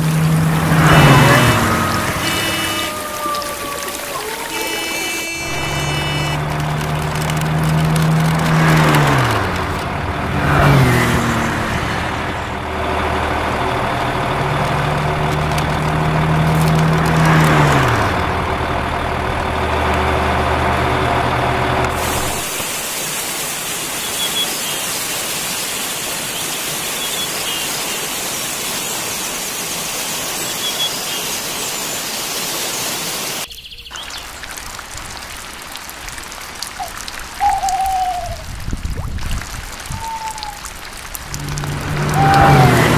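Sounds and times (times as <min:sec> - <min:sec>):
motor humming: 0:00.0 - 0:20.7, 0:41.2 - 0:42.9
steady hiss: 0:22.0 - 0:33.5.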